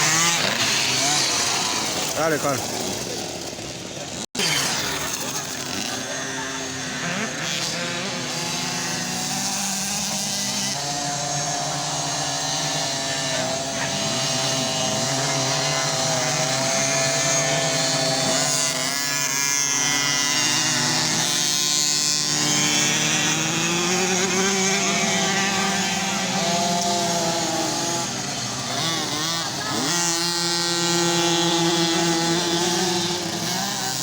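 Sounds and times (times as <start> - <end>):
motocross bike engines revving: 0.0 - 34.0.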